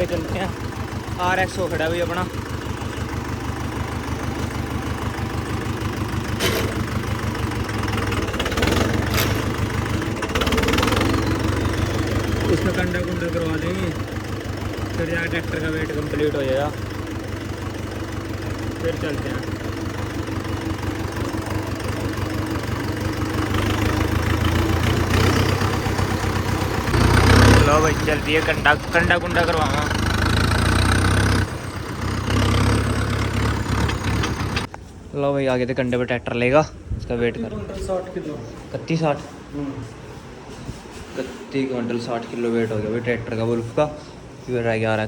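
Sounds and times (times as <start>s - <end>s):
tractor diesel engine idling: 0.0s - 34.8s
sharp clatters: 4.2s - 14.0s, 29.8s - 34.7s.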